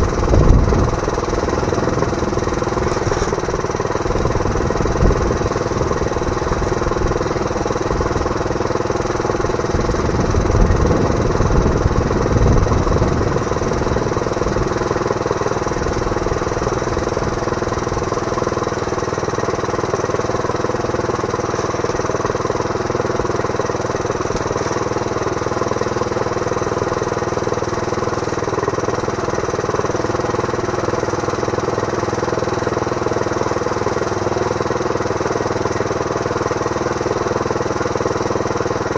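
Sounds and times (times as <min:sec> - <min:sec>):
heavy rumbling bumps: 0:00.0 - 0:06.8
small engine running: 0:00.0 - 0:38.9.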